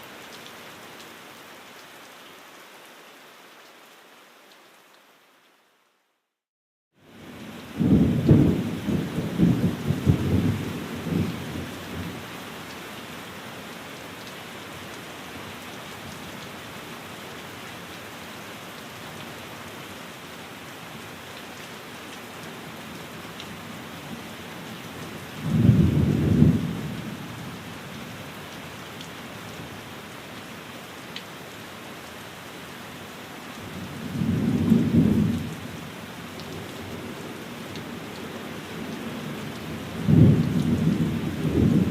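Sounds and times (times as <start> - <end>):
rain falling on a window: 0.0 - 6.2, 7.0 - 41.9
low rumbles of thunder: 7.7 - 12.2, 25.4 - 27.2, 33.9 - 35.6, 39.9 - 41.9.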